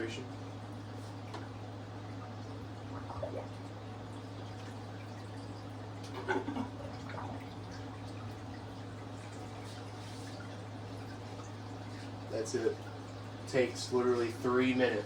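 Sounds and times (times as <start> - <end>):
water trickling and dripping: 0.9 - 15.0
water splashing: 2.4 - 13.8.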